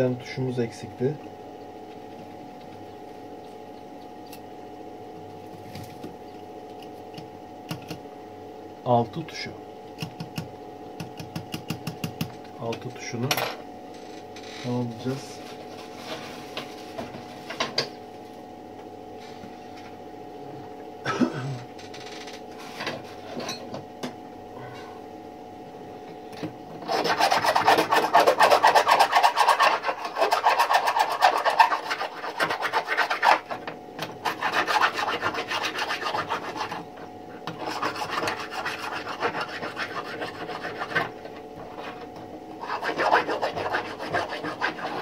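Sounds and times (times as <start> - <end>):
steady hum: 0.0 - 45.0
hand file rasping: 26.8 - 33.6, 34.2 - 36.8, 37.5 - 41.1, 42.6 - 45.0.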